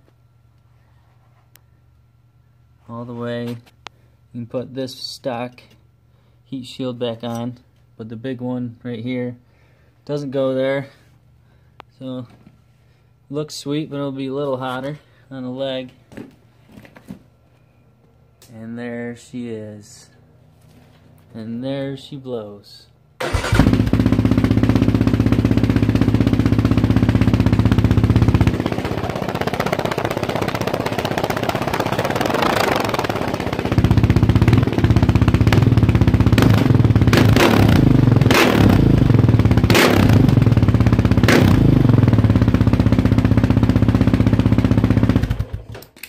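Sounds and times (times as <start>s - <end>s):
loud engine revving: 23.2s - 42.7s.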